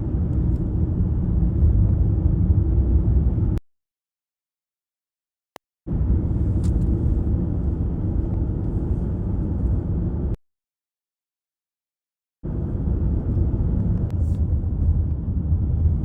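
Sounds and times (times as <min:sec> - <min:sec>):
car road rumble inside cabin: 0:00.0 - 0:03.6, 0:05.9 - 0:10.4, 0:12.5 - 0:16.0.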